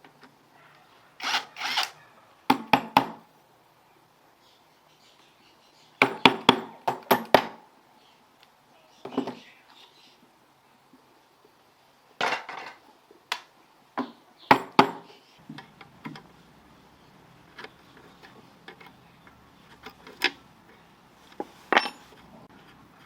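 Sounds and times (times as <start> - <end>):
metal tools clinking and knocking: 21.7 - 22.2.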